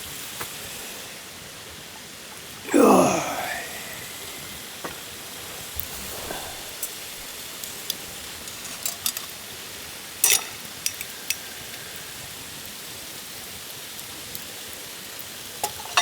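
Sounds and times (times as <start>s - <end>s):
food sizzling in a hot pan: 0.0s - 16.0s
utensils clicking against pan: 8.4s - 9.4s, 10.2s - 11.4s.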